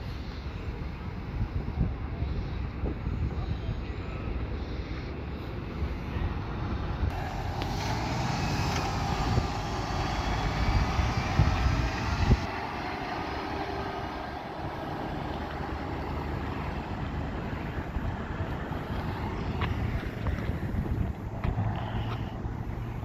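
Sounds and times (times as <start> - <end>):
wind rumbling on microphone: 0.0 - 23.0
motor vehicle passing: 6.5 - 23.0.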